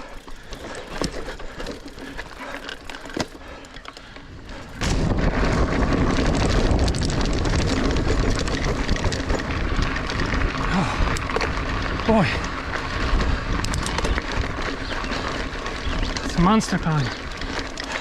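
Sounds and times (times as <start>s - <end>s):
mountain bike clattering: 0.0s - 18.0s
clicks and knocks from bike frame: 0.2s - 4.8s, 5.5s - 16.4s
wind rumble on microphone: 4.3s - 17.8s.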